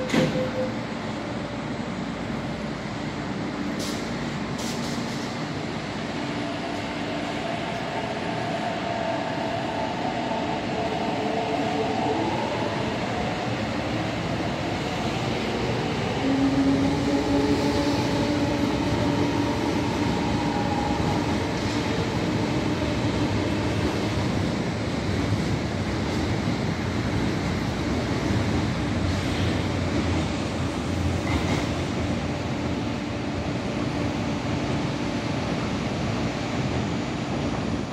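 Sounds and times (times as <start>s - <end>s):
train wheels rumbling on track: 0.0s - 37.9s.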